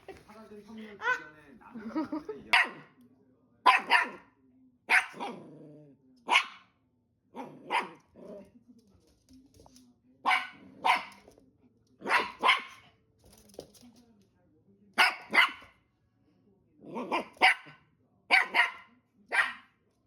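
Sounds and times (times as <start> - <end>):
dog barking: 2.5 - 3.0, 3.6 - 4.3, 4.9 - 5.5, 6.2 - 6.7, 7.4 - 8.1, 10.2 - 11.2, 12.0 - 12.9, 15.0 - 15.8, 16.9 - 19.8.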